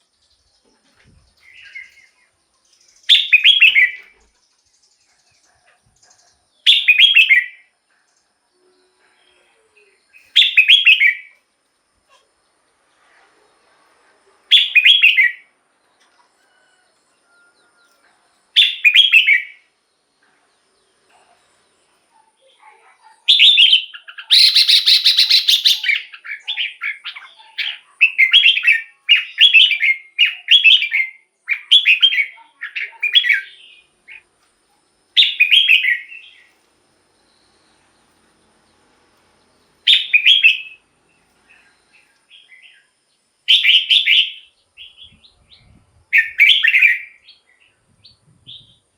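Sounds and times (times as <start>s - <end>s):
bird singing warbled phrases: 0.0s - 11.4s, 14.5s - 15.5s, 18.6s - 20.2s, 20.8s - 34.3s, 35.2s - 36.6s, 39.6s - 48.9s.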